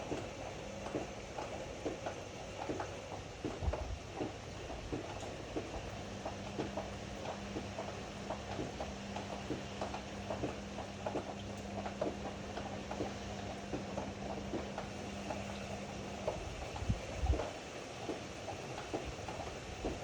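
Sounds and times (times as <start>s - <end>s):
washer-dryer humming: 0.0s - 20.0s
drum knocks and clicks: 0.1s - 15.5s.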